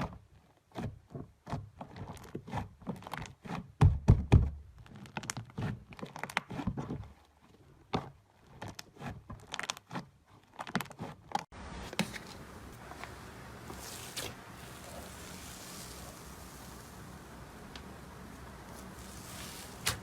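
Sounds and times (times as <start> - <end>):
faint hiss: 11.6 - 20.0.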